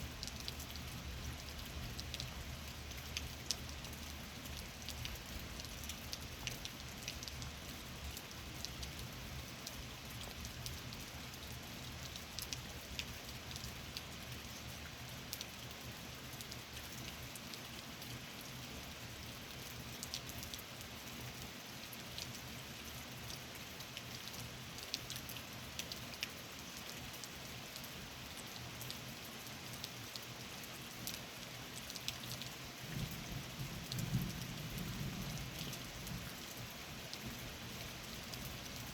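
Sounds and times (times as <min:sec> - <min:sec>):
raindrops pattering on a surface: 0:00.0 - 0:38.9.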